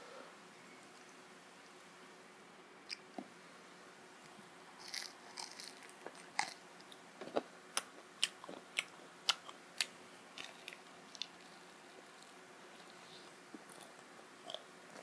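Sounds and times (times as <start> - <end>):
soft chewing crackles: 2.8 - 3.4, 4.2 - 15.0
crunching fried chicken: 4.8 - 6.6, 7.2 - 15.0.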